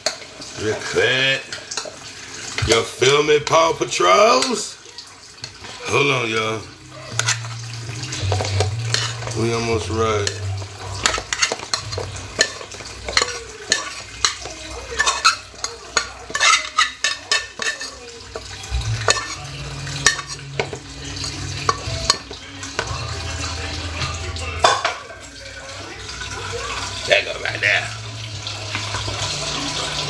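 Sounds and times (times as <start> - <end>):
food sizzling: 0.0 - 30.0
utensil scraping frying pan: 5.4 - 25.1, 25.9 - 30.0.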